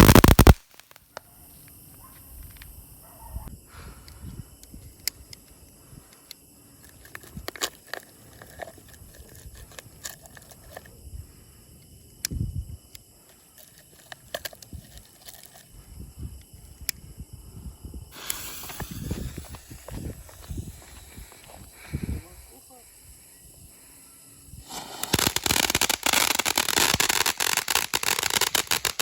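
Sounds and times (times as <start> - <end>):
firework fountain hissing spray: 0.0 - 1.0, 18.1 - 21.4, 24.6 - 29.0
firework crackling pops: 0.0 - 1.2, 18.2 - 21.4, 24.6 - 29.0.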